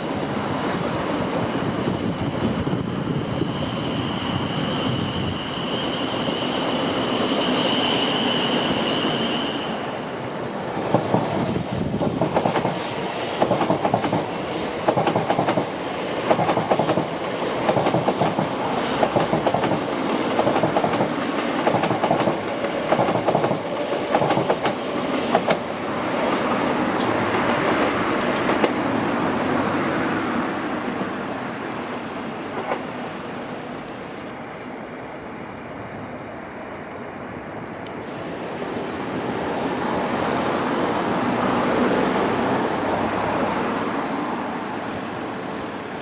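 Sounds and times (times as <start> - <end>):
train rumble: 0.0 - 46.0
high wheel squeal: 2.1 - 10.0
train wheels clicking over joints: 10.9 - 28.9.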